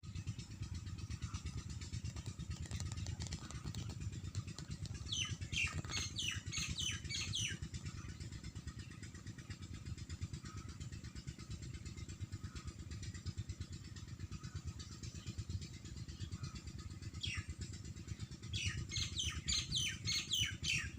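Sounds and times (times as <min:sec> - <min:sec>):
low fluttering rumble: 0:00.0 - 0:20.9
bird chirping: 0:02.1 - 0:08.2, 0:18.5 - 0:20.9.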